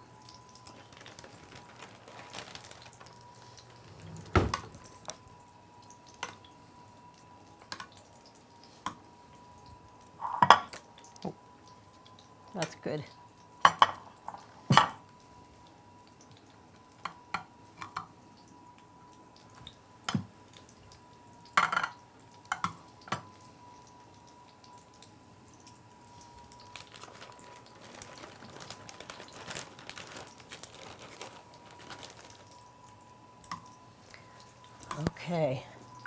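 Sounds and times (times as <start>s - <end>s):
food frying in hot oil: 0.0s - 3.8s, 4.4s - 36.0s
utensils clinking on pans: 10.2s - 10.8s, 13.7s - 15.0s.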